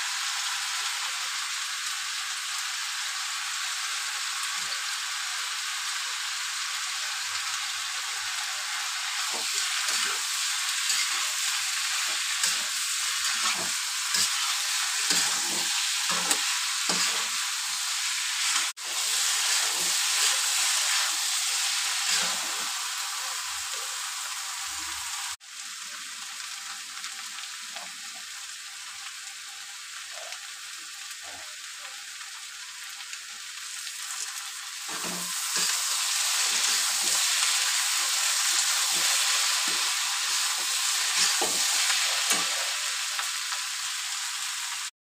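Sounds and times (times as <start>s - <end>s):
vegetables sizzling in oil: 0.0s - 44.9s
metal spatula scraping a pan: 9.2s - 17.4s.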